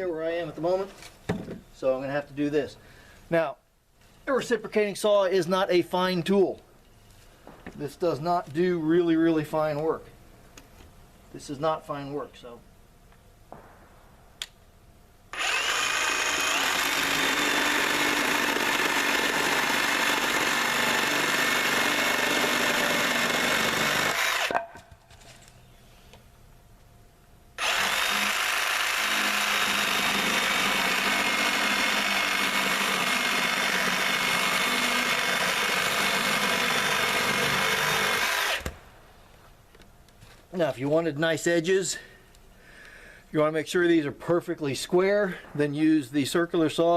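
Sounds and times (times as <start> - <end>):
reciprocating saw cutting wood: 15.3 - 24.6, 27.6 - 38.8.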